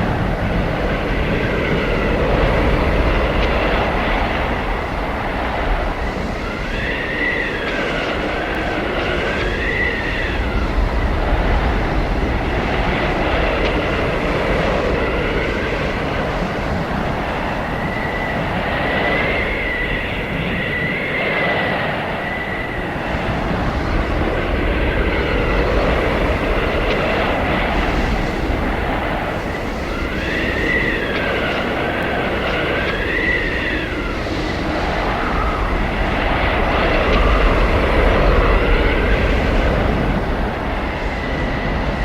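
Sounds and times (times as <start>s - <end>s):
blizzard wind blowing: 0.0s - 42.0s
wavering wind whistle: 0.0s - 42.0s.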